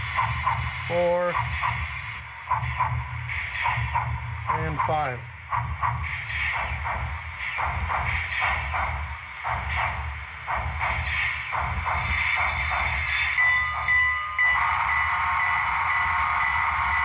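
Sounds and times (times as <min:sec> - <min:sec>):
steam locomotive exhaust chuffs: 0:00.0 - 0:17.0
multi-chime steam whistle: 0:12.2 - 0:17.0.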